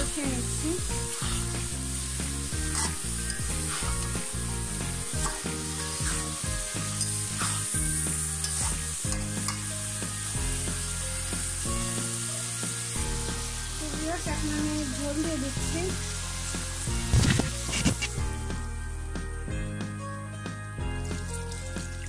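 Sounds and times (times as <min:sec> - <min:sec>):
food sizzling in hot oil: 0:00.0 - 0:19.2, 0:20.7 - 0:22.0
metal spatula scraping pan: 0:02.6 - 0:04.4, 0:05.1 - 0:09.7.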